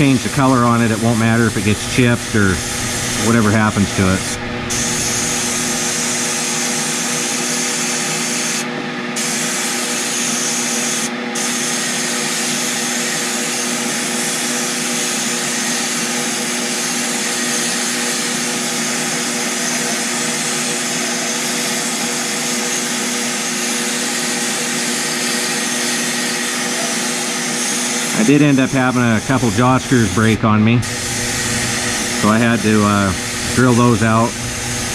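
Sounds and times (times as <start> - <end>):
steady hum: 0.0 - 7.9, 28.1 - 34.9
sandblaster gun hissing: 0.0 - 8.6, 27.8 - 34.9.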